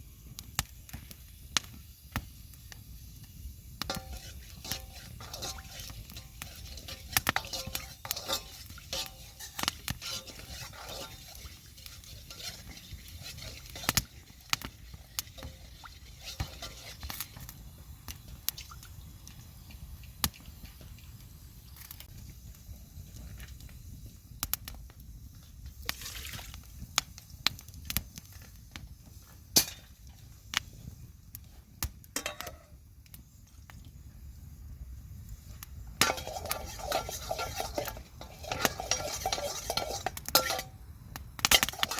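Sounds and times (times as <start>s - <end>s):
utensils and dishes clinking: 3.9s - 14.0s, 36.0s - 40.8s, 41.6s - 41.9s.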